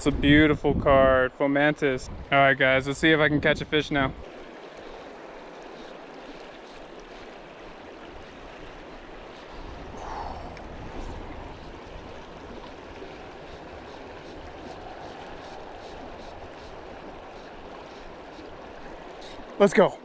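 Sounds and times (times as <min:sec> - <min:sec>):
river water rushing: 0:04.2 - 0:20.0.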